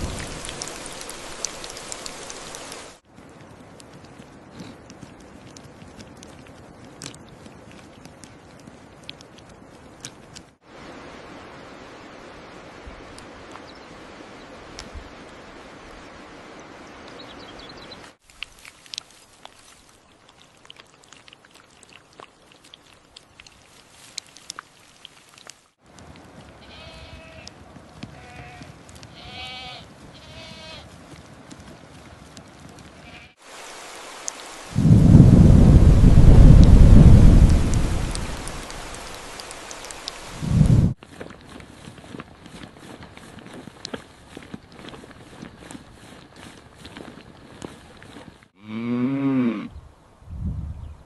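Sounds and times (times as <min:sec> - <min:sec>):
background hiss: 0:00.0 - 0:06.8, 0:23.6 - 0:41.0
sheep or goats bleating: 0:26.6 - 0:30.9, 0:33.0 - 0:33.4
faint clicks: 0:37.5 - 0:40.3.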